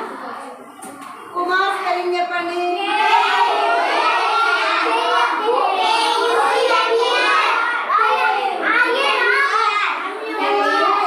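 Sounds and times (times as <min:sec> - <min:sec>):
children reciting in a chant: 0:02.7 - 0:11.0.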